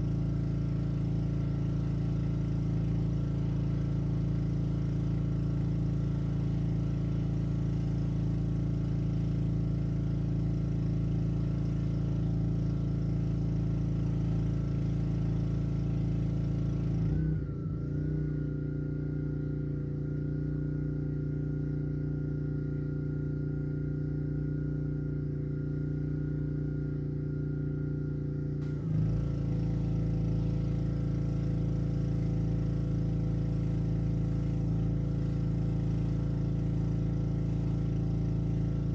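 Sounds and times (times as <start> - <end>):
pressure washer engine running: 0.0 - 22.9, 28.6 - 38.9
steady high whine: 17.0 - 29.0.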